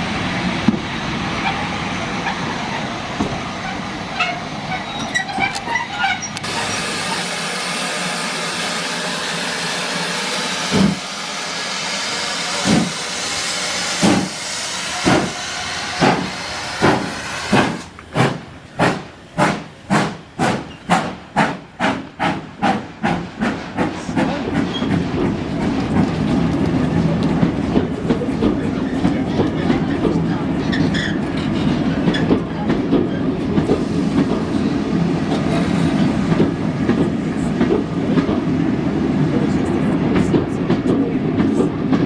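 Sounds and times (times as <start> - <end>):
train rolling rumble: 0.0 - 42.0
steam hissing: 6.4 - 25.5.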